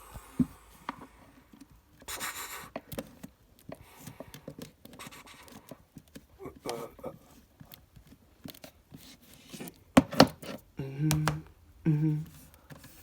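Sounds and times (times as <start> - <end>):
light taps and scrapes: 2.7 - 10.6.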